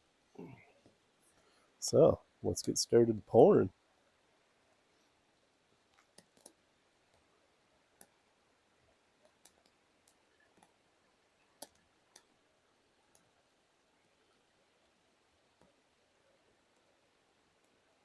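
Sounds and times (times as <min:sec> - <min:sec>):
faint scattered clicks: 0:05.9 - 0:07.3, 0:07.9 - 0:08.2, 0:09.2 - 0:10.8, 0:11.4 - 0:12.4, 0:13.1 - 0:13.4.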